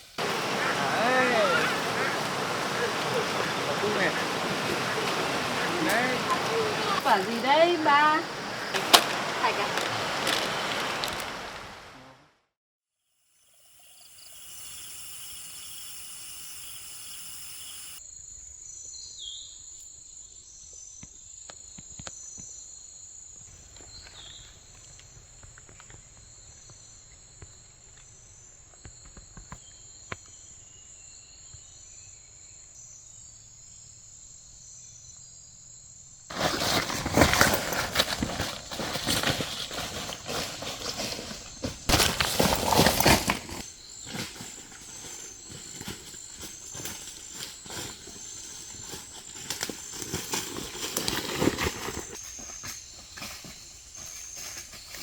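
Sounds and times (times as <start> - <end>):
insects trilling: 0.0 - 11.9, 13.1 - 55.0
loud rough rustling: 0.0 - 11.9, 36.3 - 55.0.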